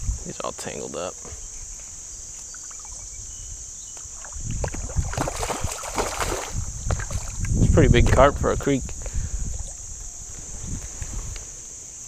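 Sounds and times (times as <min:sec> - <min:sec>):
water splashing and sloshing: 0:04.0 - 0:07.5.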